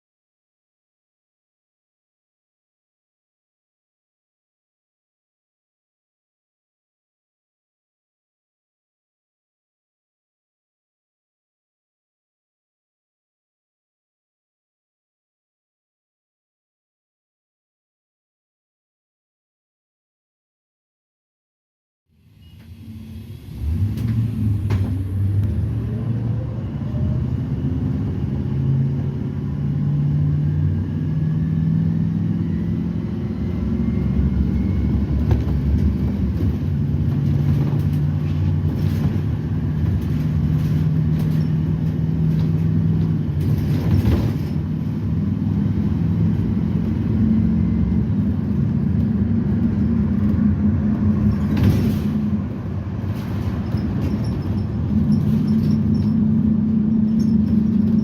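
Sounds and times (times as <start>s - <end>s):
bus engine droning: 22.2s - 58.0s
bus rattles: 22.4s - 58.0s.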